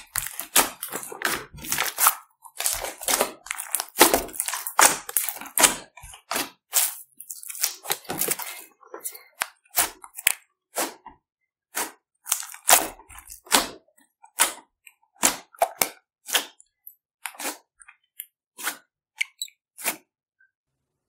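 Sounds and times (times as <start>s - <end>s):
slime popping and crackling: 0.0s - 8.6s.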